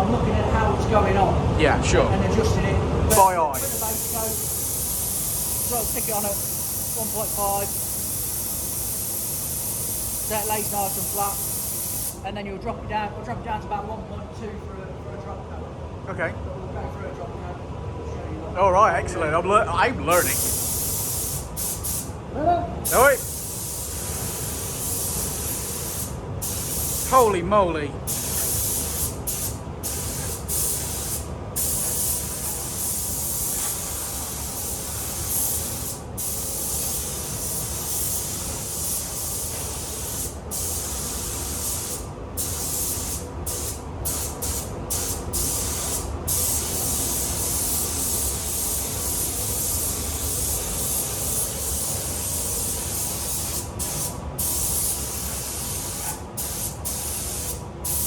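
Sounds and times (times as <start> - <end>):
paint spray gun hissing: 3.1 - 12.2, 20.1 - 22.1, 22.9 - 27.2, 28.1 - 58.0.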